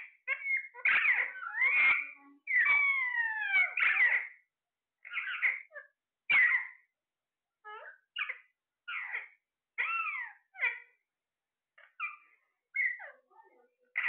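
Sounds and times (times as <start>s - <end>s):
parrot squawks and whistles: 0.3s - 4.4s, 5.0s - 6.8s, 7.7s - 10.9s, 12.8s - 13.1s.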